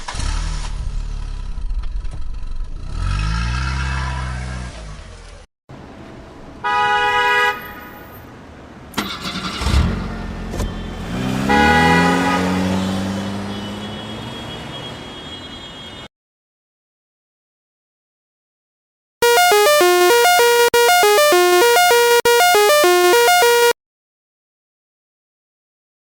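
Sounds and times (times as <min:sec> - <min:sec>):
engine revving: 0:02.8 - 0:04.6, 0:11.0 - 0:13.6
horn toot: 0:19.2 - 0:23.8.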